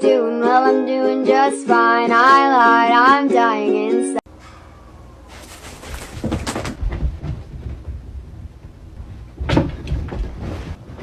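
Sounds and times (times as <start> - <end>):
knocks and bumps: 5.3 - 11.0.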